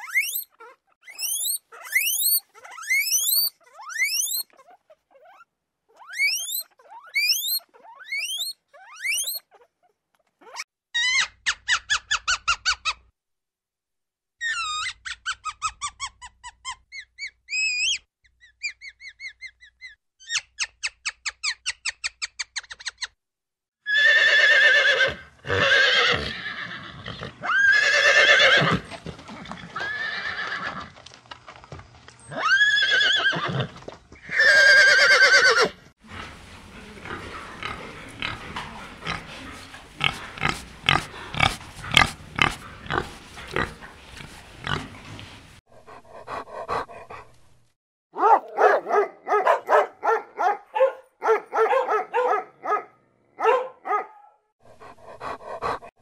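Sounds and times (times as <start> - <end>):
horses neighing: 23.9 - 31.0, 32.3 - 45.2
pig grunting and snuffling: 28.6 - 29.9, 36.0 - 47.4, 54.6 - 56.0.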